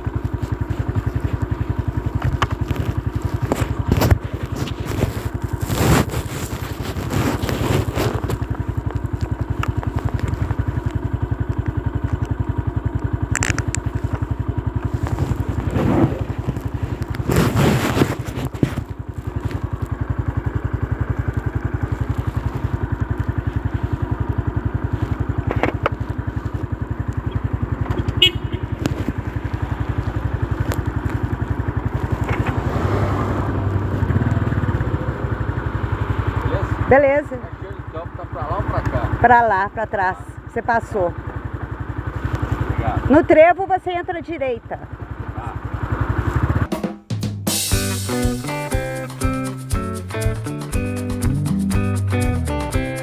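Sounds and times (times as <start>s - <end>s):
wind and road noise: 0.0s - 39.3s, 45.1s - 46.7s
motorcycle engine running: 0.0s - 53.0s.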